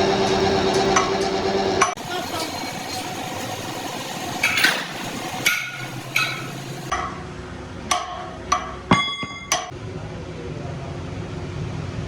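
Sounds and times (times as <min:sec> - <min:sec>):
hammer striking metal: 0:00.3 - 0:07.3, 0:07.9 - 0:09.8.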